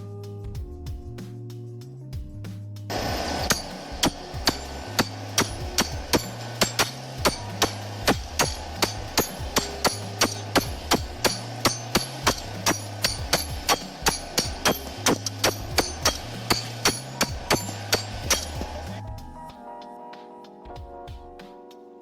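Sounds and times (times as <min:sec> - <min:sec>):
hammer strikes: 0:02.9 - 0:19.0.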